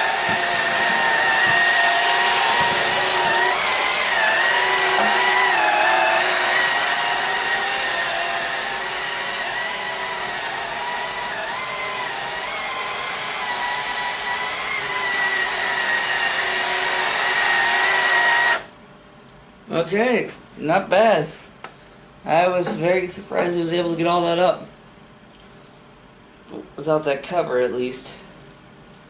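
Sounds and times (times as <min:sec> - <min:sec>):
vacuum cleaner motor whine: 0:00.0 - 0:18.7.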